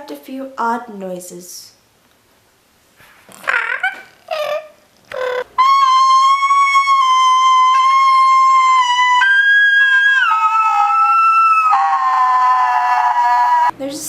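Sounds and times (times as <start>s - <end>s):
saxophone playing high notes: 5.1s - 13.7s.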